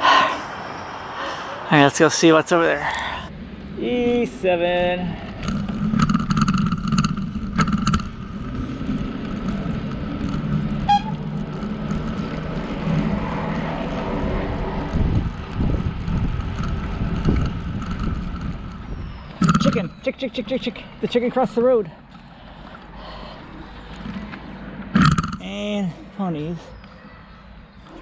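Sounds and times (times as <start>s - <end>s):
wind buffeting microphone: 0.0s - 3.3s.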